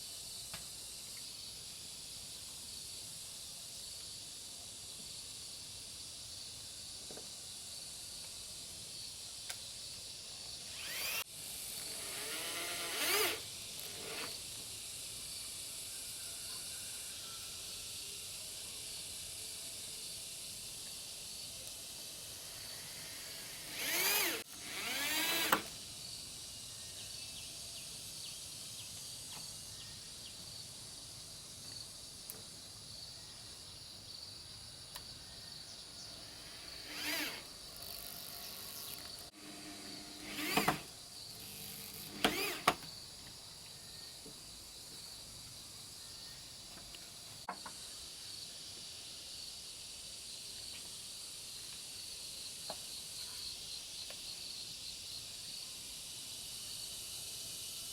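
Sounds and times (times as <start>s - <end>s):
high-pitched insect buzz: 10.4s - 30.3s, 35.6s - 43.0s.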